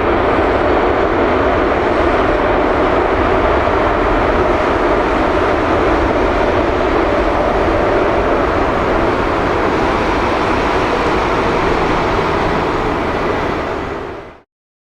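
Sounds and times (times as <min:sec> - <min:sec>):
jet engine roaring: 0:00.0 - 0:14.4.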